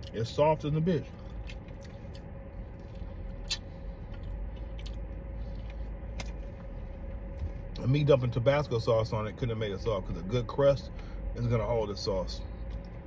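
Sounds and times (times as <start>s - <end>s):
steady low hum: 0.0s - 13.0s
wet chewing mouth sounds: 1.1s - 6.4s.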